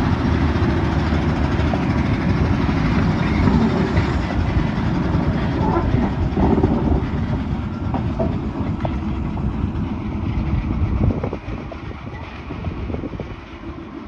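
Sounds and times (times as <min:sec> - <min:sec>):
diesel locomotive rumbling: 0:00.0 - 0:14.0
wheels knocking over rail joints: 0:00.6 - 0:09.5.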